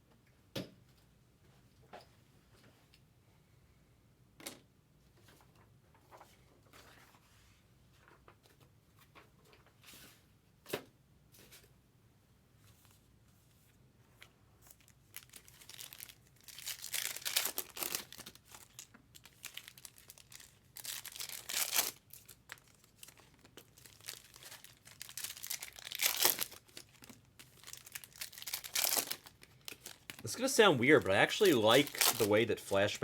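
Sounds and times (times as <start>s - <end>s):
card pack wrappers tearing and crinkling: 14.7s - 33.0s.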